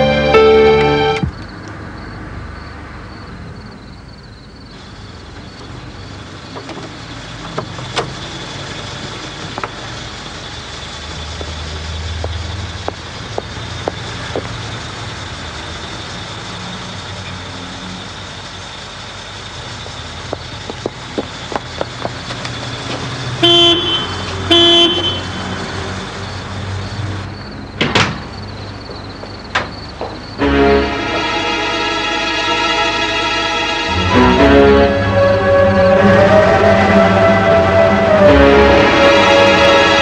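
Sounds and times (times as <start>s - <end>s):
car engine running: 4.8s - 25.2s.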